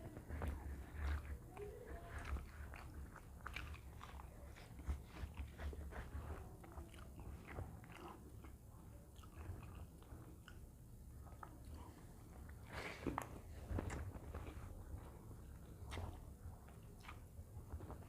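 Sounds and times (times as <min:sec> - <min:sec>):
faint low hum: 0:00.0 - 0:18.0
person chewing food: 0:00.0 - 0:18.0.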